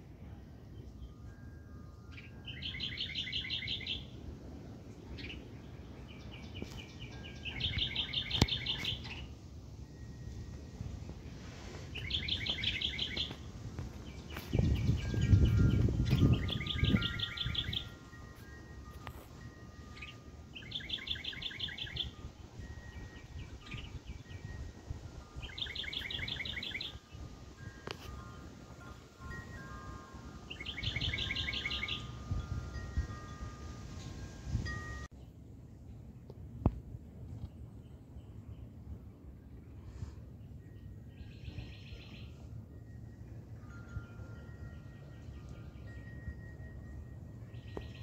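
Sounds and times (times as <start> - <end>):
bird chirps: 2.1 - 4.2, 5.0 - 10.1, 11.9 - 33.4, 47.5 - 48.0
songbird trilling: 2.1 - 4.2, 5.1 - 9.4, 11.9 - 13.4, 14.0 - 18.6, 19.4 - 33.4.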